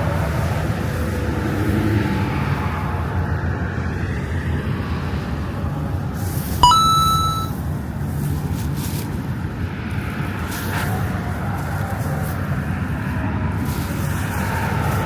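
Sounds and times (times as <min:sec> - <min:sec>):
bright metallic ding: 0:06.6 - 0:07.5.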